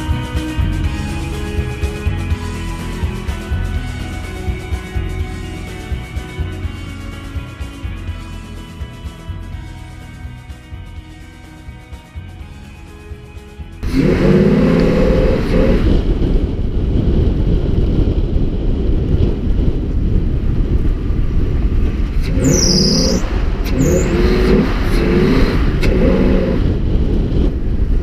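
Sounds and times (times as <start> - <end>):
vehicle engine starting and revving: 13.8 - 17.8, 20.4 - 28.0
high squeal: 22.2 - 26.6.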